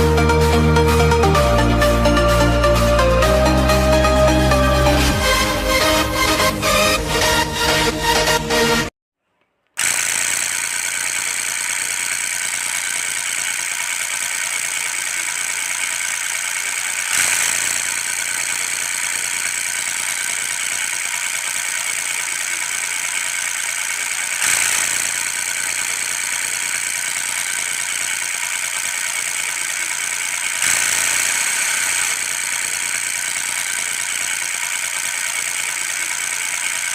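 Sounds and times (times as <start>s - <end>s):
small electric motor whining: 9.8s - 36.9s.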